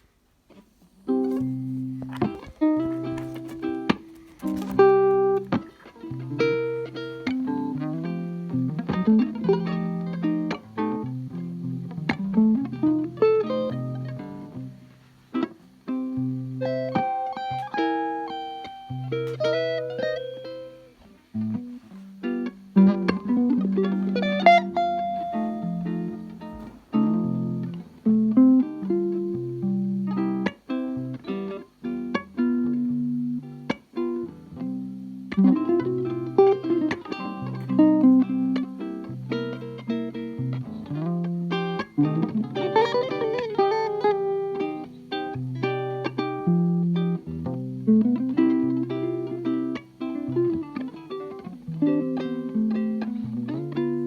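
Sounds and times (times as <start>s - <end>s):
acoustic guitar jazz blues: 0.5s - 54.0s.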